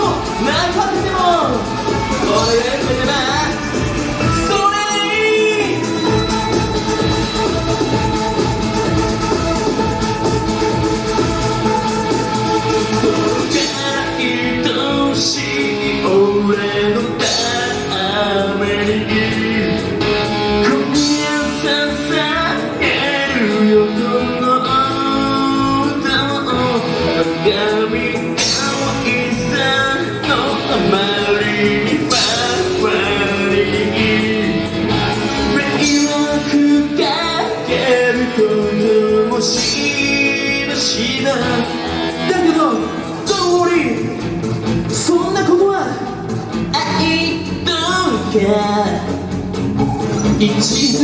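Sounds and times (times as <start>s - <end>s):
drums keeping steady beat: 0.0s - 14.8s, 28.2s - 51.0s
electric guitar: 0.0s - 51.0s.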